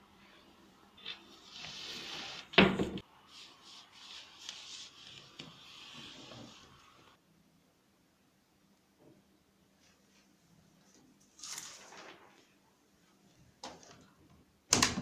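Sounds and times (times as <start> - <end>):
soft rubbing and rustling: 3.3 - 7.2, 9.8 - 13.4.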